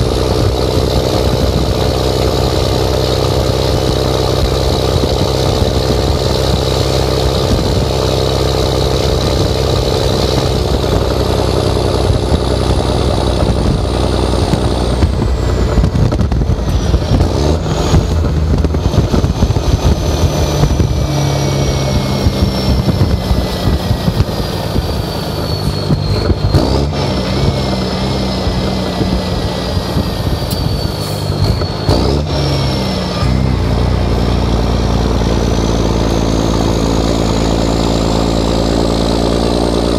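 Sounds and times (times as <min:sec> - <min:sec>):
loud diesel truck engine: 0:00.0 - 0:39.9.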